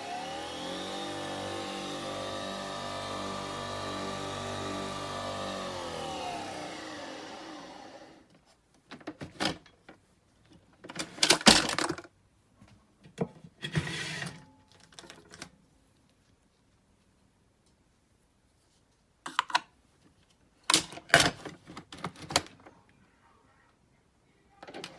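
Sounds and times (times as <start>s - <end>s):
coffee machine motor whining: 0.0s - 8.3s.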